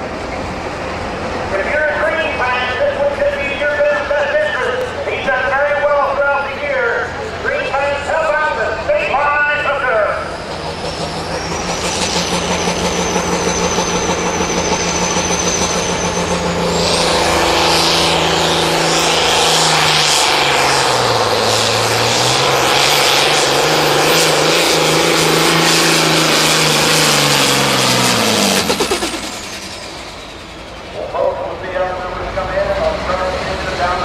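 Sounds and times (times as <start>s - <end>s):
diesel tractor engine at full throttle: 0.0s - 34.0s
turbo whine: 9.2s - 31.2s.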